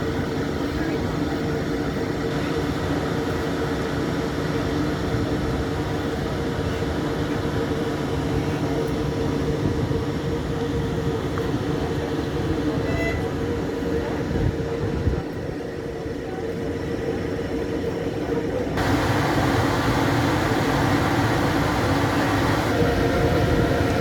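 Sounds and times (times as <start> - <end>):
locomotive humming: 18.8 - 24.0.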